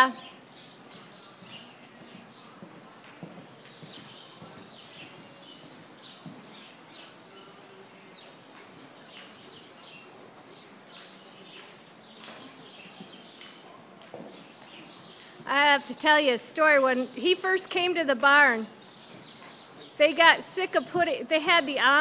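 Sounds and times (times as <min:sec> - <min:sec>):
faint background noise: 0:00.0 - 0:22.0
small birds chirping: 0:00.0 - 0:22.0.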